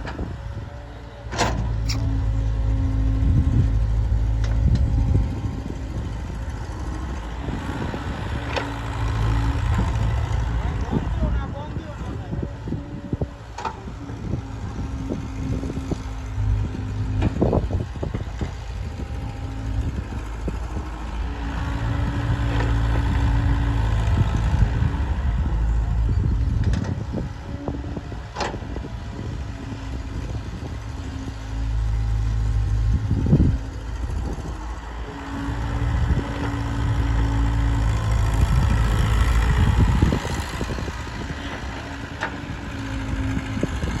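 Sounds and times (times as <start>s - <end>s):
loader diesel engine revving: 13.2s - 44.0s.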